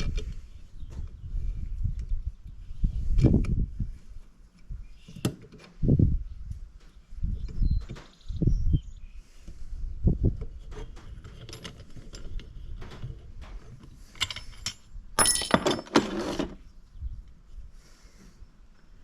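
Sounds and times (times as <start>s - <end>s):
metal tools clinking: 14.0s - 16.6s.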